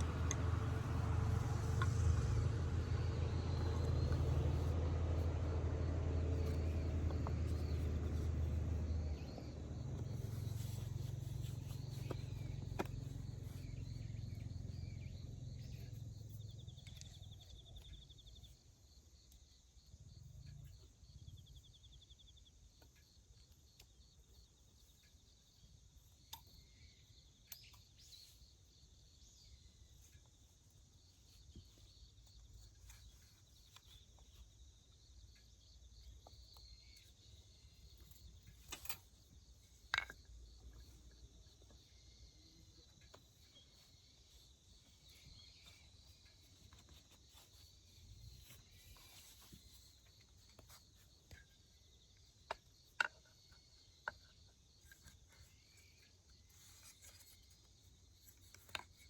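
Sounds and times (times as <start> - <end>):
insects chirping: 0.0 - 59.0.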